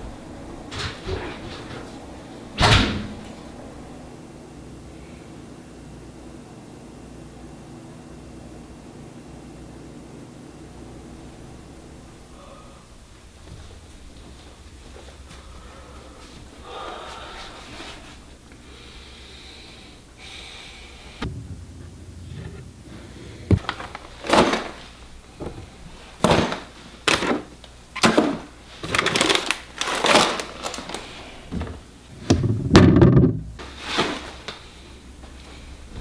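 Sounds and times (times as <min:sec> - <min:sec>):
knocks and thuds: 0:21.2 - 0:24.8, 0:31.5 - 0:33.6.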